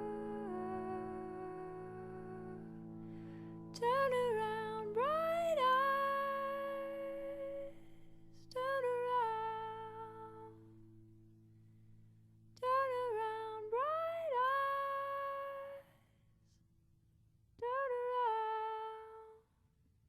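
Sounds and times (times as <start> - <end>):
woman humming: 0.0 - 2.7
sustained low chord: 0.0 - 12.6.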